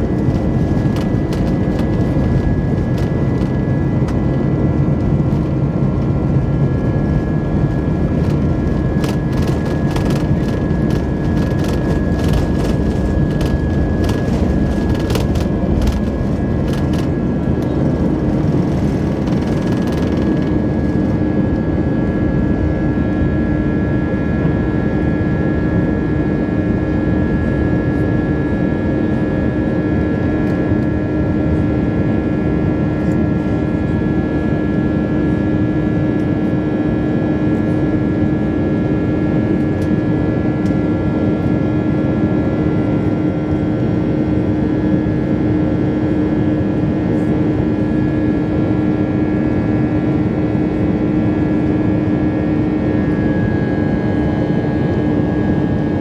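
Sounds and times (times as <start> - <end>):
constant low hum: 0.0 - 56.0
jet engine and airflow rush: 0.0 - 56.0.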